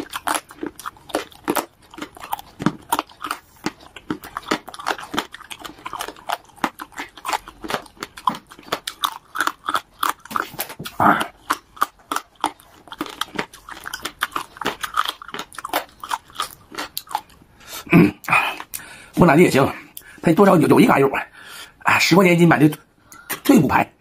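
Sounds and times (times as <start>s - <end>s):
crunchy chewing: 0.0s - 18.9s
soft wet chewing: 0.0s - 18.9s.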